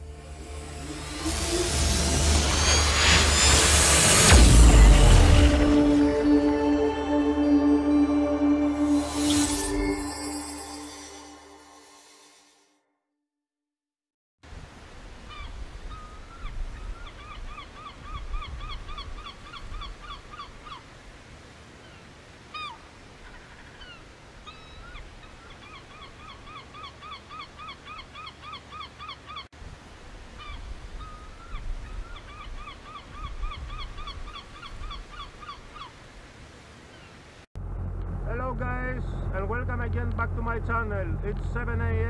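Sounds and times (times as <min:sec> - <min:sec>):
low rumble: 0:00.0 - 0:10.0, 0:37.6 - 0:42.0.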